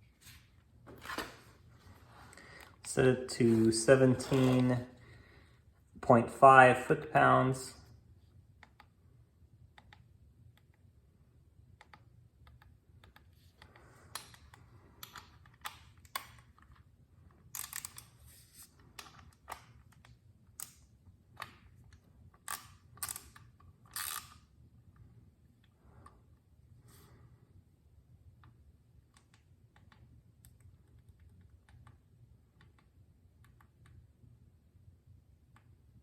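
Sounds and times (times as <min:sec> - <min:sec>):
low steady hum: 0:00.0 - 0:36.0
torque wrench clicking: 0:22.5 - 0:24.4.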